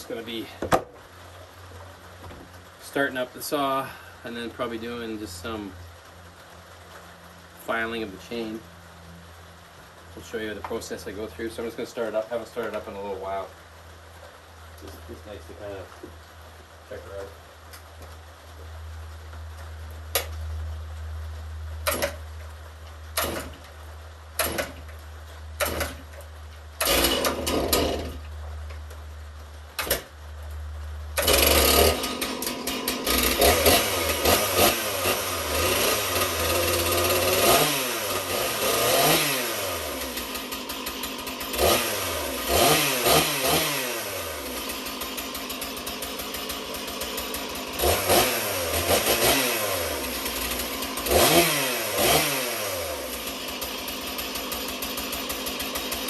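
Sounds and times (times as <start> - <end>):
chainsaw engine revving: 21.8 - 22.2, 23.1 - 23.7, 24.4 - 24.8, 25.6 - 26.2, 26.8 - 28.3, 29.7 - 30.1, 31.2 - 56.0
chainsaw starter cord tugs: 21.8 - 22.3, 23.1 - 23.8, 24.4 - 25.0, 25.6 - 28.3, 29.7 - 30.1, 31.2 - 56.0.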